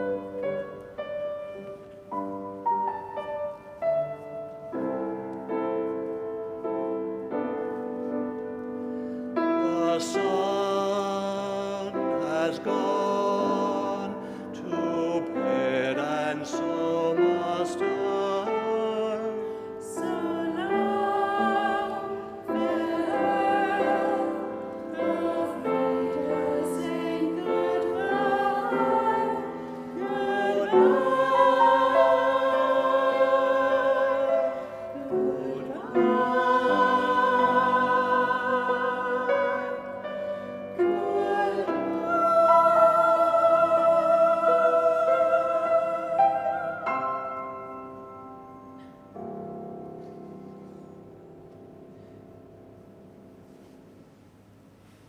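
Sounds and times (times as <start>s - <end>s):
choir singing: 0.0s - 4.0s, 9.4s - 47.9s
piano accompaniment: 0.0s - 54.8s.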